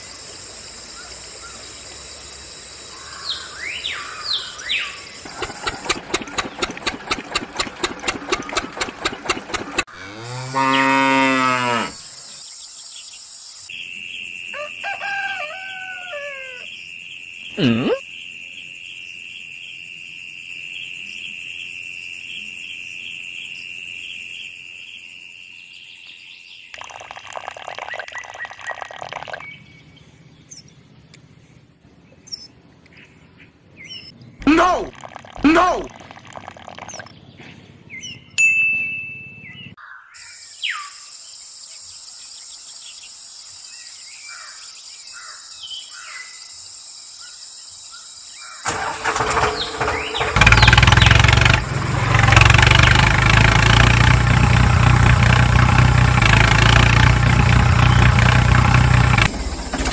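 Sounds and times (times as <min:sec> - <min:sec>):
bird-like calls: 0:02.9 - 0:09.9
chirping calls: 0:02.9 - 0:12.0, 0:48.4 - 0:51.6
fast even clicking: 0:05.3 - 0:09.9
cow mooing: 0:09.9 - 0:12.0.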